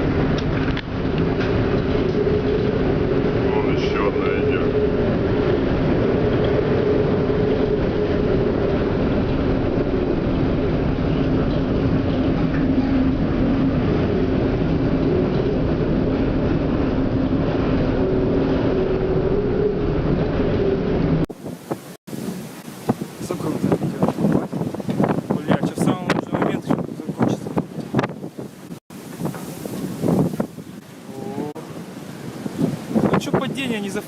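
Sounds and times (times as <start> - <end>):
mechanical drone with humming tones: 0.0 - 21.3.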